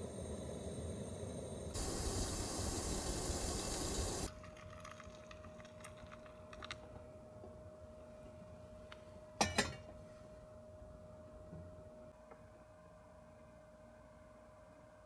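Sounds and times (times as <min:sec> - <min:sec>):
faint steady hum: 0:00.0 - 0:04.3
heavy rain hissing: 0:01.7 - 0:04.3.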